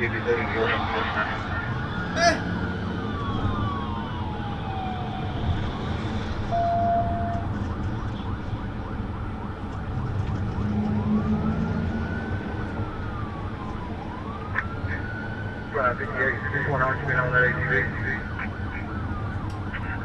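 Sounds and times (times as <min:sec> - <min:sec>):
engine and road rumble: 0:00.0 - 0:20.0
police siren wailing: 0:00.0 - 0:20.0
short steady tone: 0:06.5 - 0:07.4.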